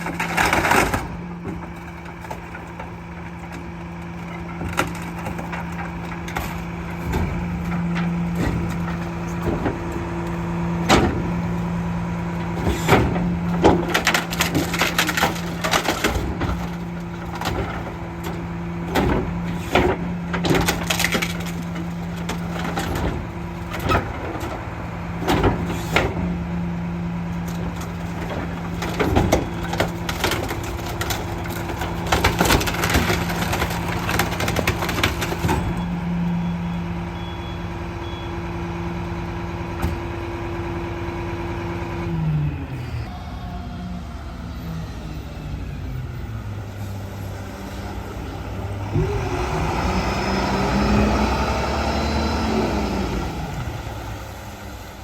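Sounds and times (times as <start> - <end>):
refuse cracking and crunching: 0.0 - 36.1
garbage truck engine and hydraulics hum: 0.0 - 55.0.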